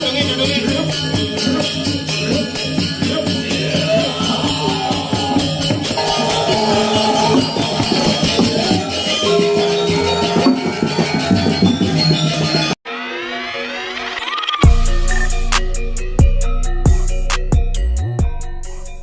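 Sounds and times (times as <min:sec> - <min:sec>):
gamelan music: 0:00.0 - 0:19.0
ringing pitched metal tones: 0:01.0 - 0:12.8.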